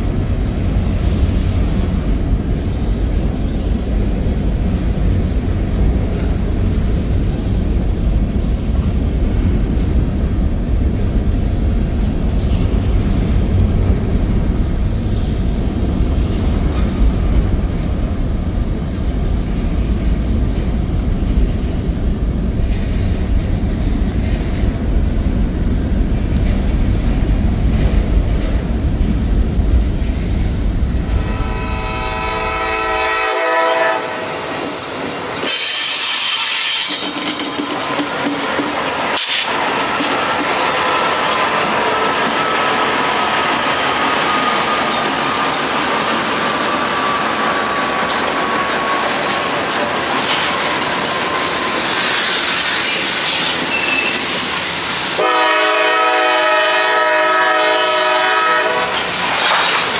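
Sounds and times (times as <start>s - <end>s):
train wheels rumbling on rail: 0.0s - 59.9s
train horn: 31.1s - 34.5s, 55.2s - 59.0s.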